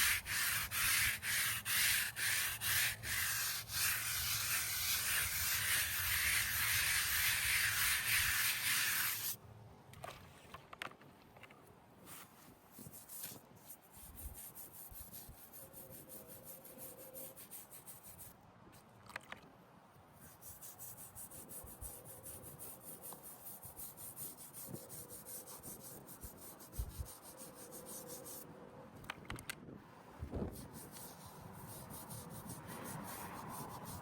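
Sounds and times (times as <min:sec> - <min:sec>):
brush scrubbing stone: 0:00.0 - 0:09.4, 0:20.2 - 0:28.4, 0:30.5 - 0:34.0.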